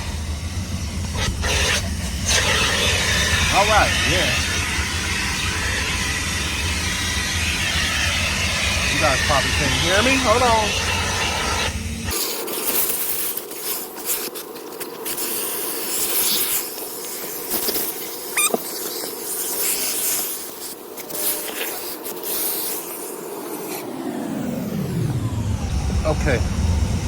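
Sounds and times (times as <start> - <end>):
vacuum squeal: 0.0 - 12.0, 18.3 - 19.0
vacuum hissing and humming: 0.0 - 27.0.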